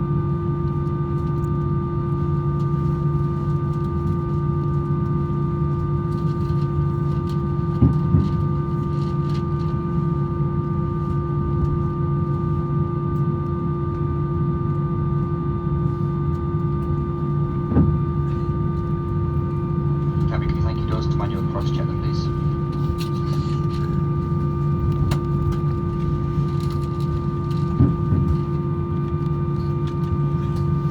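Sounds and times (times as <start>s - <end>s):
aircraft cabin hum: 16.0s - 30.9s.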